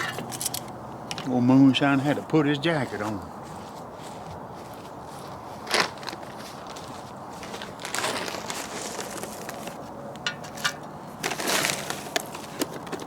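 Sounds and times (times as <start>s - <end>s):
wood chips rustling and crunching: 3.4s - 13.0s.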